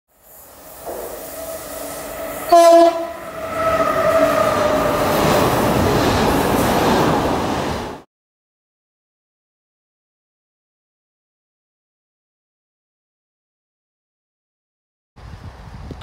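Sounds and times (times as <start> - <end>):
train approaching: 0.1 - 8.1
locomotive horn blast: 0.9 - 5.2.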